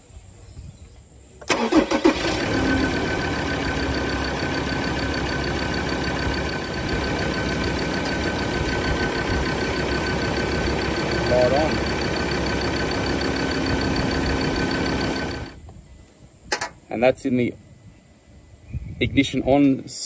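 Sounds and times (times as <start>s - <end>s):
car engine starting and idling: 1.4s - 15.6s.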